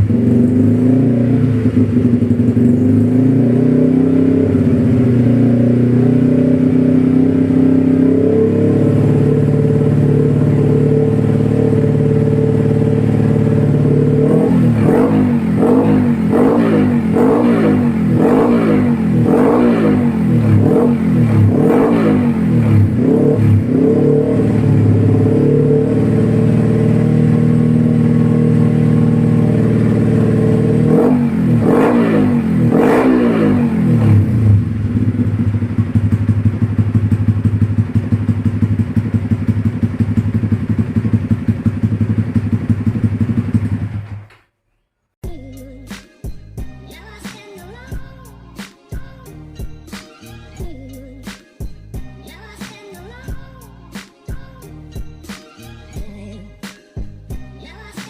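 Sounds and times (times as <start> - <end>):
motorcycle engine revving: 0.0 - 44.5.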